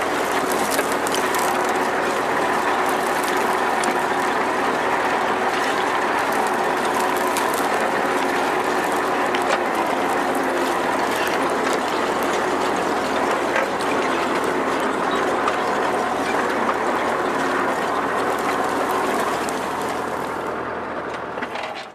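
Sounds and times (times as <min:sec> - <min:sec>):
tractor engine drone: 0:00.0 - 0:21.9.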